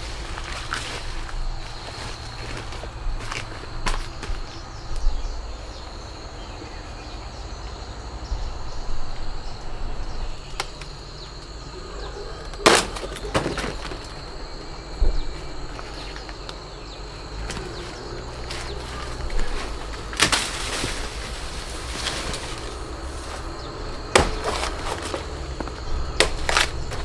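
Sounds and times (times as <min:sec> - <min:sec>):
knocks and rustles: 0:12.5 - 0:14.3, 0:17.4 - 0:27.0
rustling crash: 0:12.5 - 0:14.3, 0:18.5 - 0:27.0.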